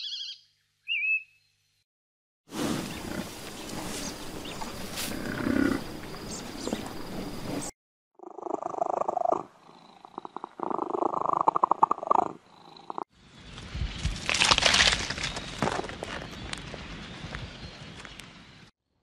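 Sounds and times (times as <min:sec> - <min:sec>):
cat purring: 0:06.7 - 0:13.0.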